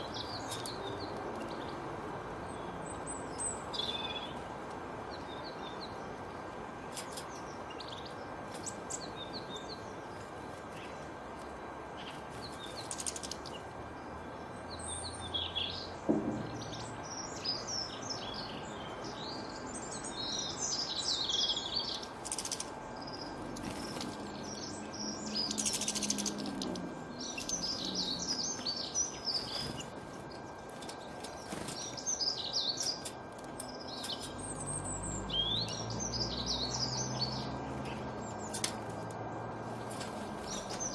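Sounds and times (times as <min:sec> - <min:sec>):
songbirds chirping and trilling: 0:00.0 - 0:40.9
steady background hiss: 0:00.0 - 0:40.9
sharp knock: 0:16.1 - 0:16.7.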